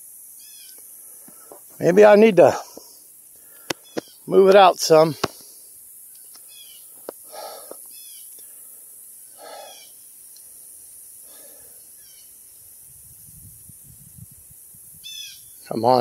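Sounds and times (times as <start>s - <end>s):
steady high hiss: 0.0s - 16.0s
faint bird chirps: 0.4s - 0.8s, 3.6s - 4.3s, 6.0s - 8.4s, 9.2s - 10.4s, 11.8s - 12.7s, 14.9s - 15.8s
soft lower bird calls: 0.4s - 0.8s, 3.4s - 4.3s, 6.1s - 8.6s, 9.2s - 10.5s, 11.3s - 12.6s, 15.0s - 15.7s.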